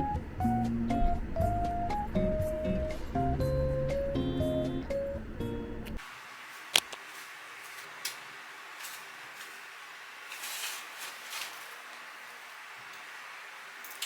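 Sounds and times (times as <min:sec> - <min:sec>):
guitar music: 0:00.0 - 0:06.0
soft rustling: 0:06.4 - 0:13.0.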